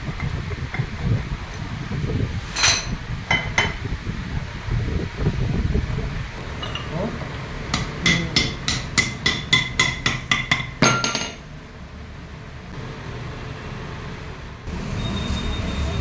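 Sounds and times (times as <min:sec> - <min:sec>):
hammer tapping on metal: 0:07.7 - 0:11.4.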